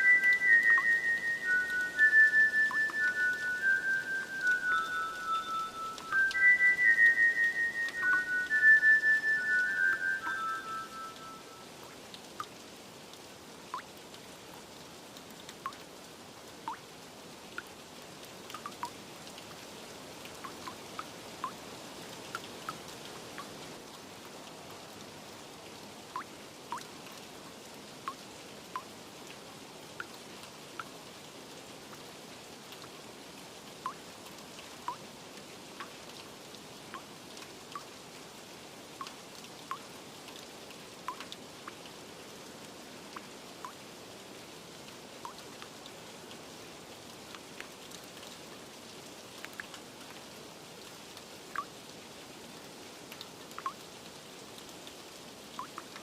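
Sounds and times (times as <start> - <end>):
water drips plinking: 0.0 - 12.6, 13.7 - 14.0, 15.5 - 15.9, 18.5 - 19.6, 20.4 - 21.6, 26.2 - 26.9, 33.8 - 34.0, 34.8 - 35.0, 36.9 - 37.9, 39.0 - 40.4, 41.0 - 41.9, 49.4 - 49.8, 51.5 - 51.7, 53.1 - 53.8, 55.6 - 56.0
steady rain: 0.0 - 56.0.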